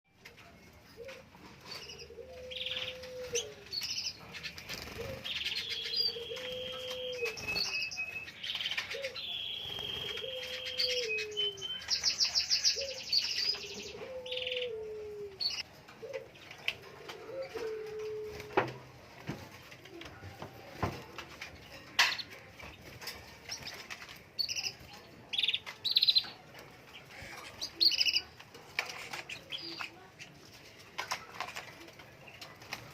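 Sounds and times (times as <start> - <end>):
canary singing: 1.0 - 15.7, 23.5 - 30.4
low cooing call: 5.0 - 7.4, 8.9 - 11.7, 13.6 - 16.2.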